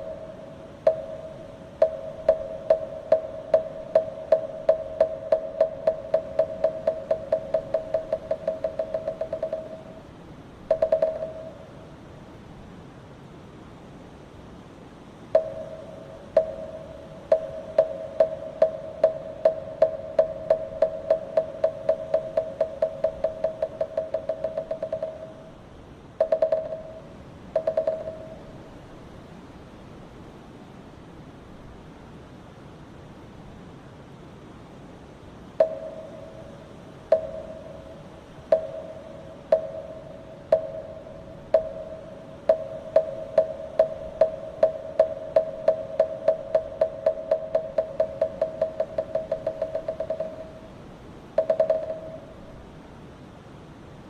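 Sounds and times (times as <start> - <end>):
steady wind-like hiss: 0.0 - 54.0
wooden fish being struck: 0.9 - 9.9, 10.7 - 11.6, 15.4 - 25.5, 26.2 - 27.0, 27.6 - 28.4, 38.5 - 50.6.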